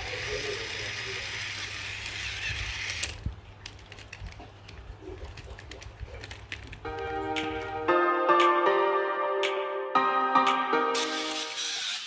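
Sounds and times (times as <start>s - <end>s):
toy motor and gears whirring: 0.0s - 3.2s, 11.0s - 12.0s.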